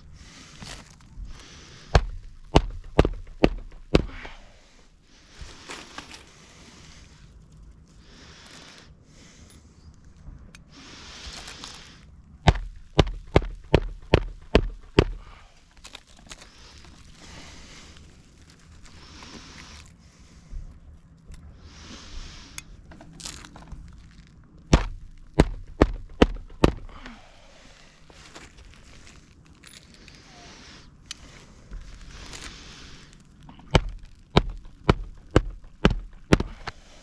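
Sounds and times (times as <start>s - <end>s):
scraping and rustling: 0.0s - 8.9s, 27.6s - 37.0s
hatchet striking nails: 1.9s - 4.4s, 12.5s - 15.3s, 24.7s - 27.0s, 33.7s - 36.8s.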